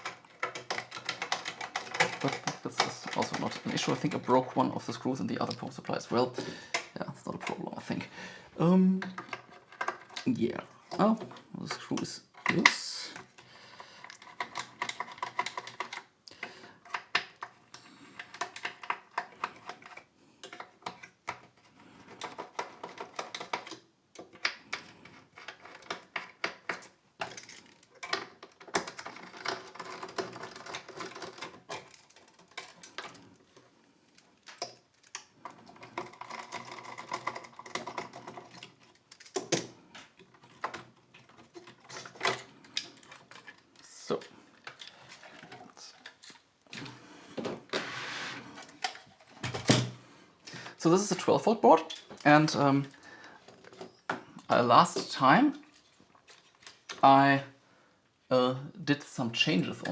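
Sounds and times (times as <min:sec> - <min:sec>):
metal parts clicking: 0:00.0 - 0:08.1, 0:16.8 - 0:46.5.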